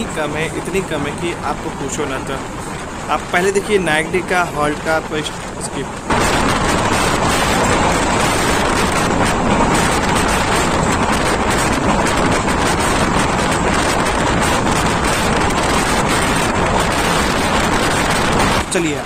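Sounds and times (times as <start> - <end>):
train running noise: 0.0 - 19.0
wind buffeting microphone: 0.0 - 19.0.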